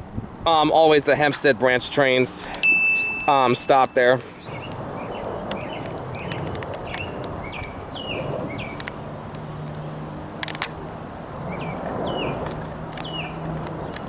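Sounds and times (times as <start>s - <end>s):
outdoor background noise: 0.0s - 14.0s
sharp clicks: 2.4s - 3.9s
songbird chirping: 2.4s - 8.8s, 11.5s - 12.4s, 13.0s - 14.0s.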